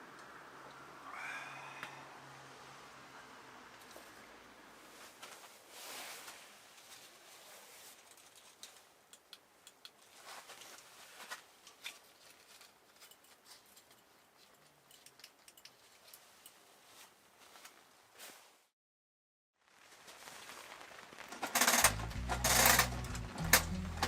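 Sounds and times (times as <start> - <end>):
soft rustling: 4.8 - 9.0, 10.0 - 14.8, 15.8 - 18.7, 19.6 - 21.9
campfire crackling and popping: 19.6 - 24.0.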